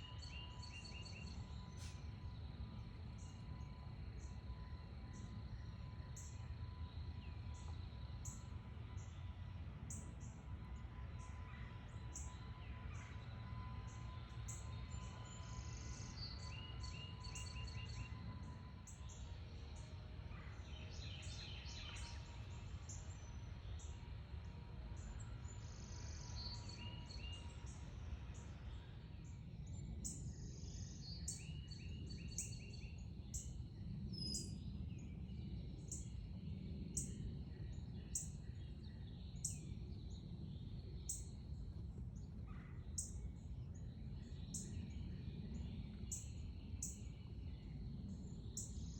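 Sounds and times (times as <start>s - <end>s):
songbirds chirping: 0.0s - 48.9s
steady low rumble: 32.9s - 48.9s.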